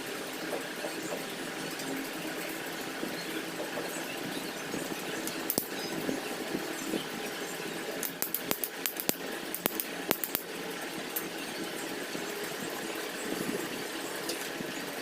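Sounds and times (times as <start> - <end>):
low mechanical hum: 0.0 - 15.0
sharp clicks and taps: 5.2 - 5.7, 8.0 - 10.5.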